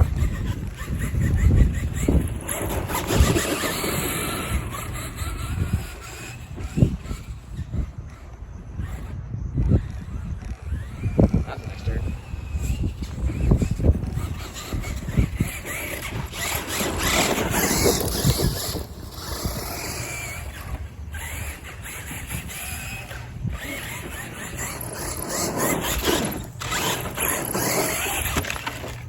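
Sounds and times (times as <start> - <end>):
rc truck electric motor whining: 0.0 - 29.0
rough rushing noise: 10.7 - 29.0.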